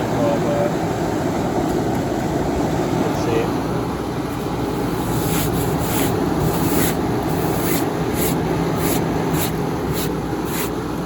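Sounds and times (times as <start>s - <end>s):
air conditioner fan rushing: 0.0s - 11.0s
short hissing swishes: 4.8s - 10.8s.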